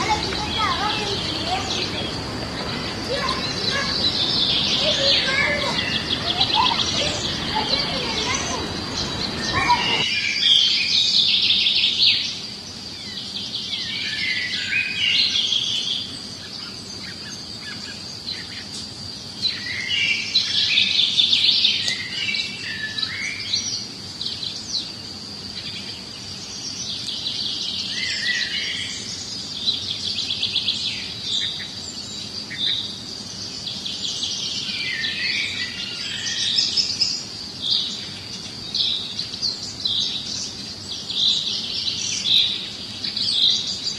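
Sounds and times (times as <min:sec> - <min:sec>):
steady high whine: 0:00.0 - 0:11.2
songbirds chirping and trilling: 0:00.0 - 0:43.9.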